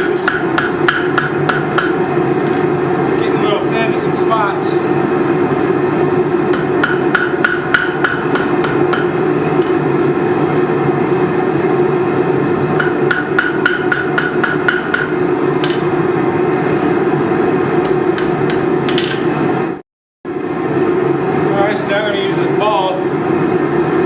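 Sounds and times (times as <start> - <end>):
hammer striking steel on anvil: 0.0 - 2.0, 6.5 - 9.2, 12.8 - 15.9, 17.8 - 19.2
forge running: 0.0 - 18.9.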